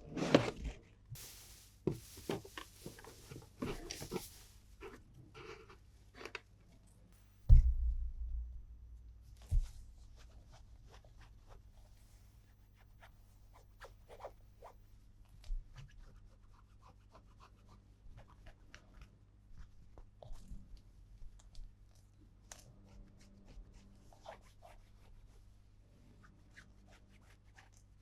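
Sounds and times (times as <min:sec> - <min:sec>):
plastic toys and packaging handled: 0:00.0 - 0:07.0
heavy low thump: 0:07.5 - 0:10.2.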